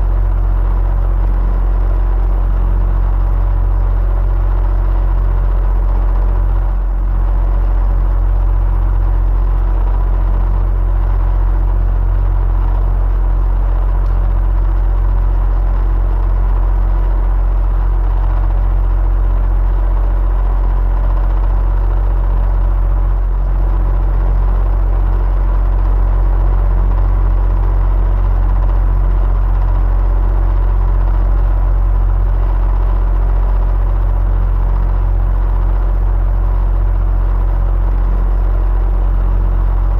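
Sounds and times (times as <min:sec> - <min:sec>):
electric fan whirring: 0:00.0 - 0:39.9.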